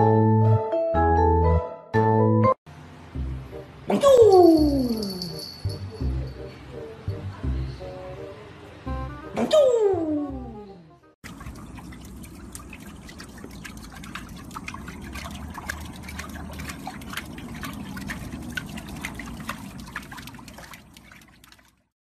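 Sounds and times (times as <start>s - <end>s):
dog paddling in water: 11.3s - 21.9s.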